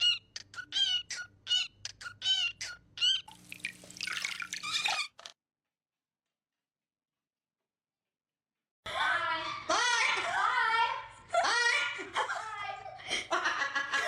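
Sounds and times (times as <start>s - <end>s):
parrot squeaky calls: 0.0s - 3.4s, 4.6s - 5.2s.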